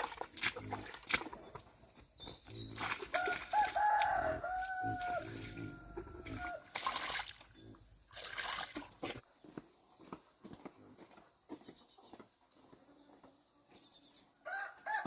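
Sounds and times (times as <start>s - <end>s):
rooster crowing: 3.2s - 6.7s, 14.4s - 15.0s.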